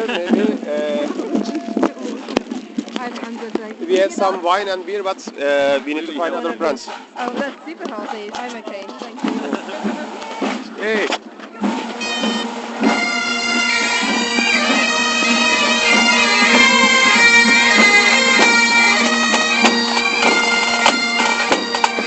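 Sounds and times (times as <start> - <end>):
bagpipes playing over drone: 11.8 - 22.0.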